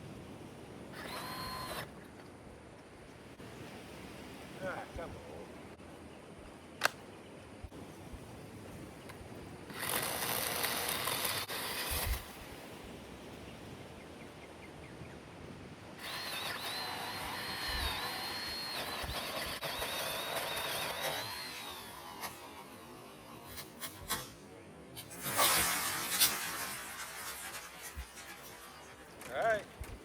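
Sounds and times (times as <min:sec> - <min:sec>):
pole saw motor whine: 0:01.0 - 0:01.9, 0:16.0 - 0:23.5.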